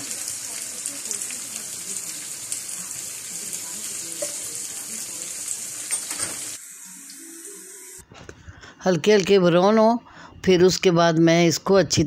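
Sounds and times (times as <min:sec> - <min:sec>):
vegetables sizzling in a frying pan: 0:00.0 - 0:08.0.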